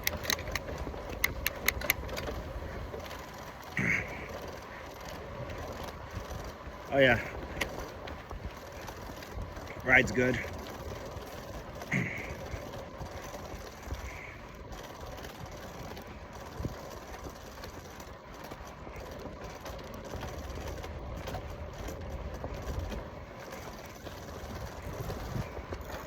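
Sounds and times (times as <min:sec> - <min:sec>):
bicycle tyres on pavement: 0:00.0 - 0:26.0
wind on microphone: 0:24.4 - 0:26.0.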